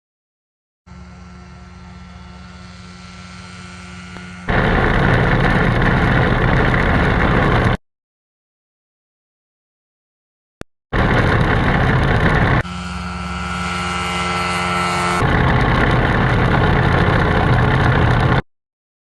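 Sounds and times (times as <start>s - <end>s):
ultralight aircraft engine drone: 0.9s - 7.8s, 11.0s - 18.4s.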